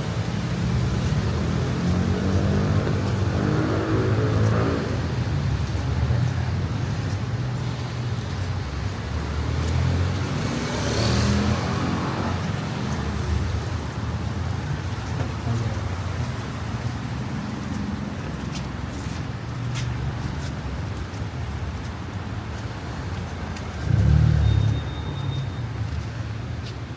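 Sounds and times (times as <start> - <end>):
vehicle passing: 0.0 - 6.5, 9.0 - 13.9, 22.9 - 25.3
traffic engine rumble: 0.0 - 26.9.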